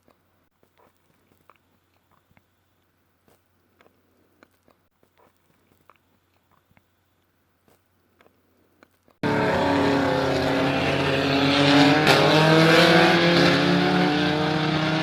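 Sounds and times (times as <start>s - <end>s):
race car engines circling: 9.2s - 15.0s.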